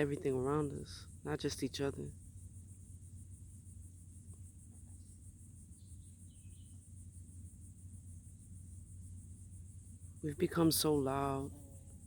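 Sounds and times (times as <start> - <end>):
crickets trilling: 0.0 - 12.0
faint low rumble: 0.0 - 12.0
faint chirp: 2.1 - 10.3.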